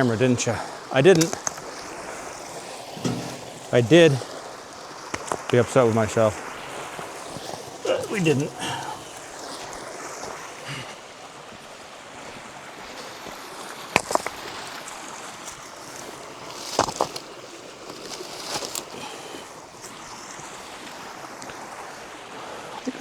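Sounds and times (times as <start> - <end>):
stream water flowing: 0.0 - 23.0
rock knocking on rock: 3.0 - 3.7.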